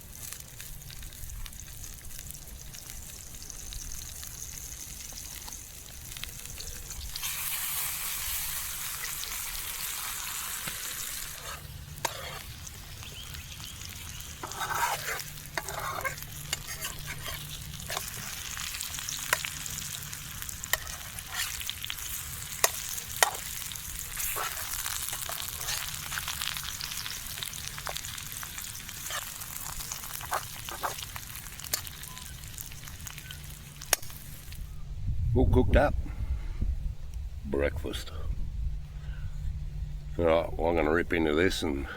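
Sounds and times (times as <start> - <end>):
food sizzling in a pan: 0.0 - 34.6
utensil scraping a pan: 10.6 - 12.6, 14.4 - 18.6, 20.6 - 23.5, 24.1 - 26.5.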